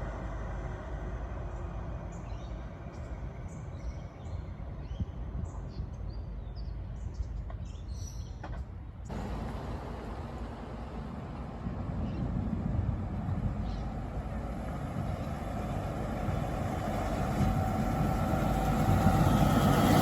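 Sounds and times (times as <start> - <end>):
garbage truck engine rumbling: 9.1 - 20.0.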